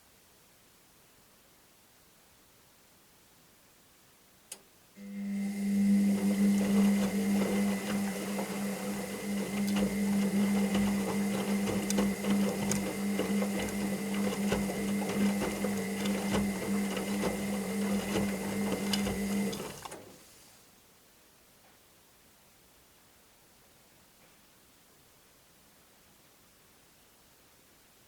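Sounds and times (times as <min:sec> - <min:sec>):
washing machine motor humming: 0:05.0 - 0:20.2.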